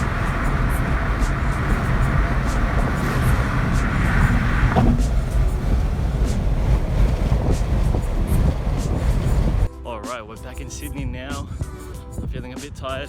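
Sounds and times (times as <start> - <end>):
car driving rumble: 0.0 - 9.7
road and wind noise: 0.0 - 9.7.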